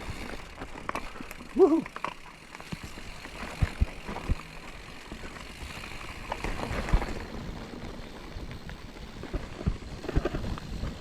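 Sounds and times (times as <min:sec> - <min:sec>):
bike tyres rolling on rocky trail: 0:00.0 - 0:11.0
wheels knocking and rattling on rocks: 0:00.0 - 0:11.0
wind noise: 0:05.6 - 0:11.0.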